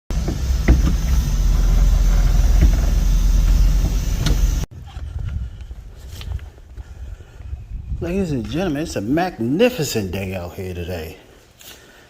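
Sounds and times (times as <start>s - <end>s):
low machine rumble: 0.1s - 5.9s.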